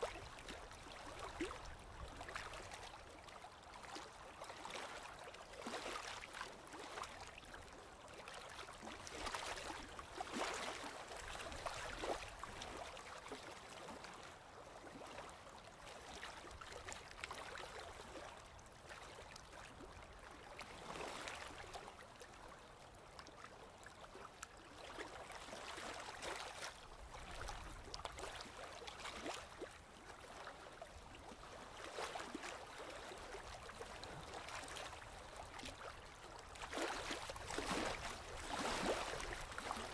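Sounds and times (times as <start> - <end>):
gentle sea waves washing: 25.5 - 39.9.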